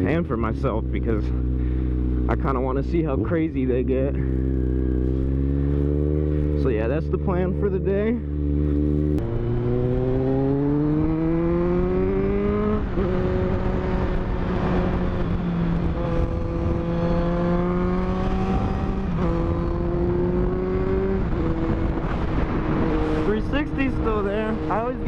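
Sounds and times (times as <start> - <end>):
motorcycle engine revving: 0.0 - 25.0
wind noise: 8.6 - 25.0.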